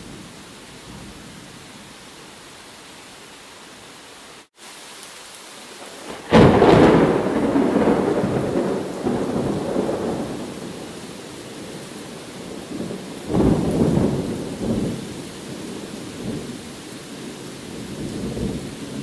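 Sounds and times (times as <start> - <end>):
steady rain: 0.0 - 19.0
thunderclap rumbling: 6.0 - 11.0, 12.4 - 15.0.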